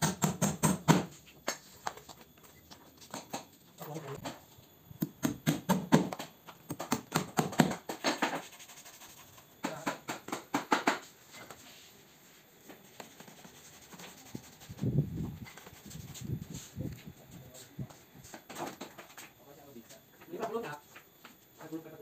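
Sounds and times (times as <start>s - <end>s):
sharp clicks and knocks on wood: 5.0s - 8.4s.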